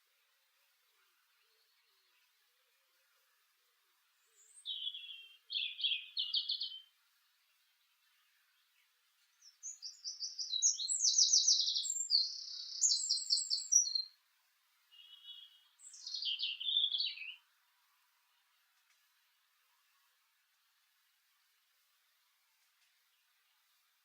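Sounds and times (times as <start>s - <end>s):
songbird trilling: 4.4s - 6.8s, 9.6s - 14.1s, 15.0s - 17.4s.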